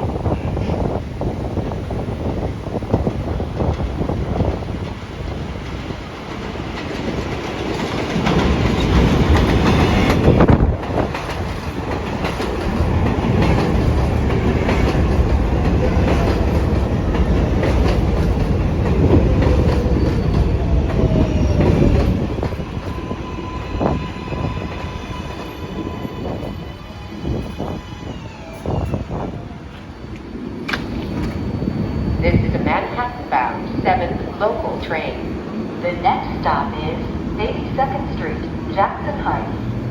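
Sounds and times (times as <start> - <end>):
train wheels clattering over rail joints: 3.6 - 23.0, 29.7 - 31.6.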